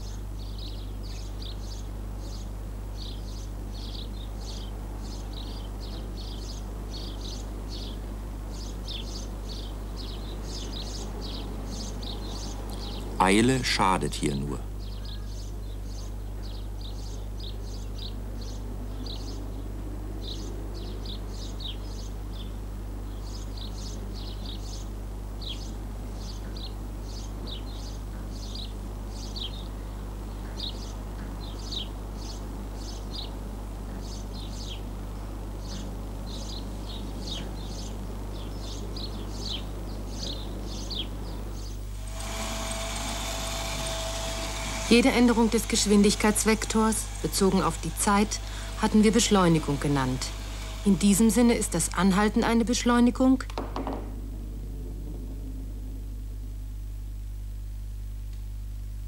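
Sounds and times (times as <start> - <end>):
small birds chirping: 0.0 - 53.6
steady hiss: 41.1 - 52.7
low hum: 41.4 - 59.0
loud whirring with held tone: 41.8 - 57.6.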